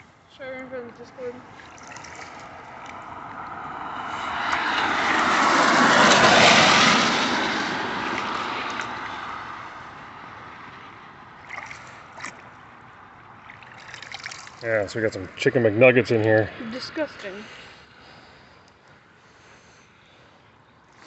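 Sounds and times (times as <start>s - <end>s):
vehicle passing on wet road: 1.5s - 17.9s.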